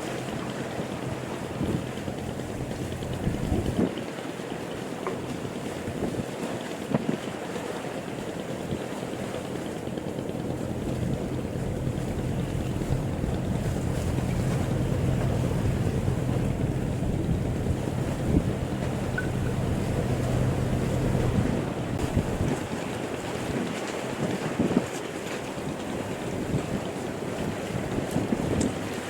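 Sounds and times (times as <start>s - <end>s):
wind buffeting microphone: 0.0s - 4.0s, 8.4s - 29.0s
sea wash: 0.0s - 29.0s
low steady drone: 0.1s - 3.8s, 9.5s - 22.7s.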